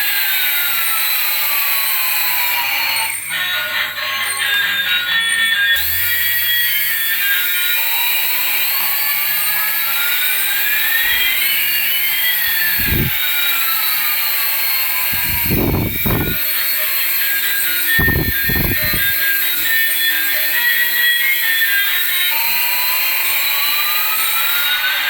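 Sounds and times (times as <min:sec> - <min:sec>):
rising and falling whistles: 0:09.9 - 0:16.4.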